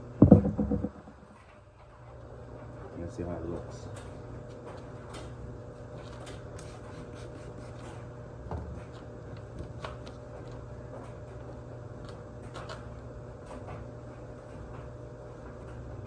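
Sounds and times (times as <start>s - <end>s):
low hum: 0.2s - 1.4s.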